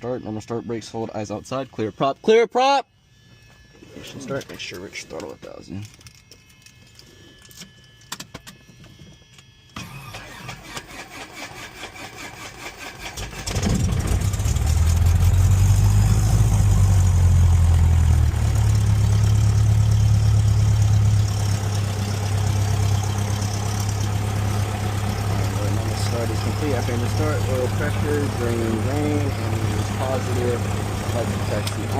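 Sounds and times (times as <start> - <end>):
aircraft engine running: 9.8 - 31.9.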